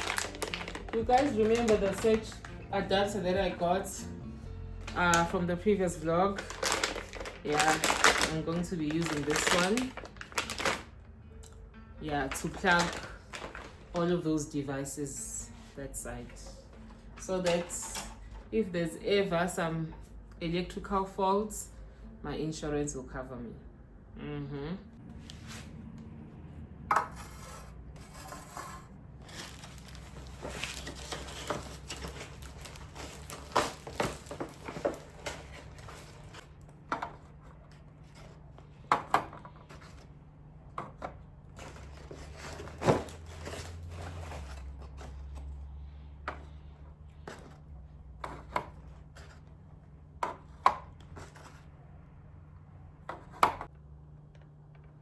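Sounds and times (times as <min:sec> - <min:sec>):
rustling: 0:29.2 - 0:36.4.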